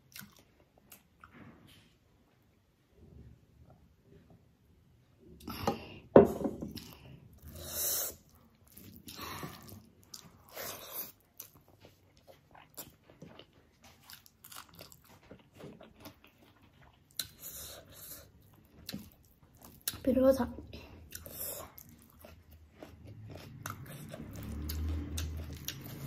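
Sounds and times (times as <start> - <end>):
chewing and mouth sounds: 0.0 - 1.4, 6.8 - 26.0.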